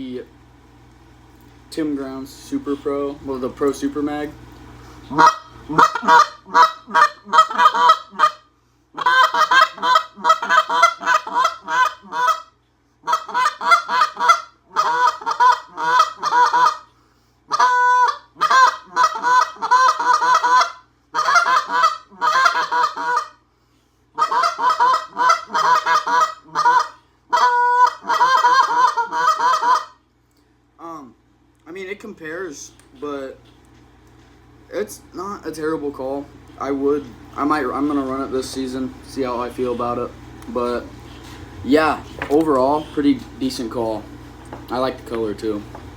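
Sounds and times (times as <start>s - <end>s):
goose call clucks and honks: 5.1s - 16.9s, 17.5s - 23.4s, 24.2s - 30.0s
goose call long drawn-out notes: 5.1s - 16.9s, 17.5s - 23.4s, 24.2s - 30.0s.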